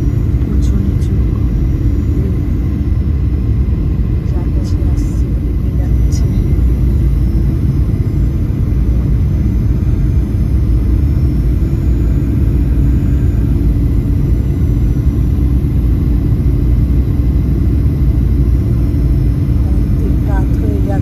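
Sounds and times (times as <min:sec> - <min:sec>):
aircraft cabin drone: 0:00.0 - 0:21.0.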